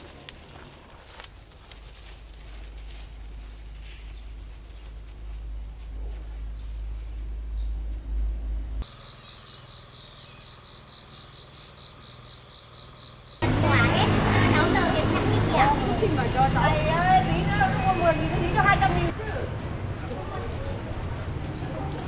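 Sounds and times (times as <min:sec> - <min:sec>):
insect pulsing chirp: 0:00.0 - 0:13.4
insects whining: 0:00.0 - 0:19.9.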